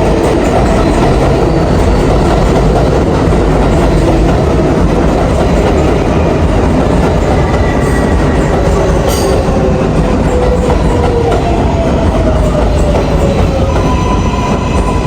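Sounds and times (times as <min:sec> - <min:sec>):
train wheels on track: 0:00.0 - 0:15.0.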